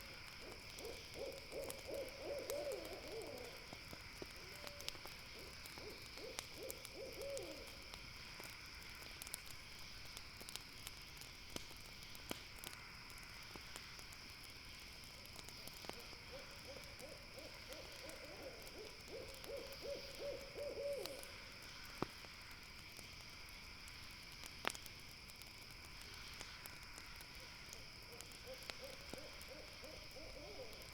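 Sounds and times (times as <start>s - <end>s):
campfire crackling and popping: 0.0s - 30.9s
insects chirring: 0.0s - 30.9s
owl trilling: 0.4s - 3.5s.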